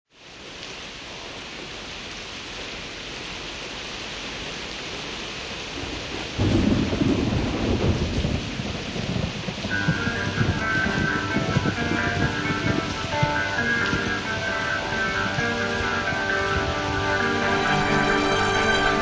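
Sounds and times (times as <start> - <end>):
rain hiss: 0.1 - 19.0
thunder rumble: 5.7 - 19.0
music: 9.7 - 19.0.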